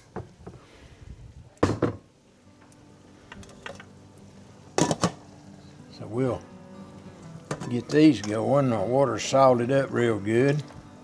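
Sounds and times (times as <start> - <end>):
cookware clattering knocks: 1.6 - 2.1, 4.8 - 5.2, 7.5 - 7.9.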